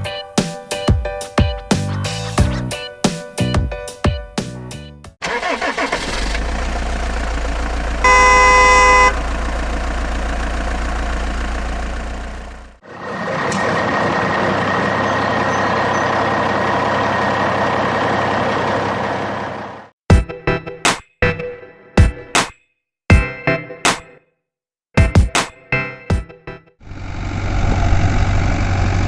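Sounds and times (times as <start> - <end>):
construction vehicle engine rumbling: 5.3 - 19.9, 26.8 - 29.0
machine engine running: 6.2 - 19.9, 26.8 - 29.0
horn honking: 8.0 - 9.3.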